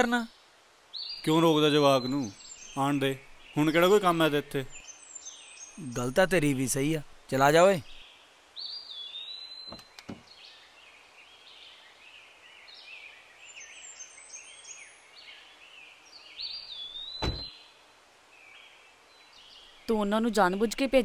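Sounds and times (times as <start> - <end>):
birds chirping and whistling: 16.2 - 17.6
sharp thump: 17.2 - 17.5.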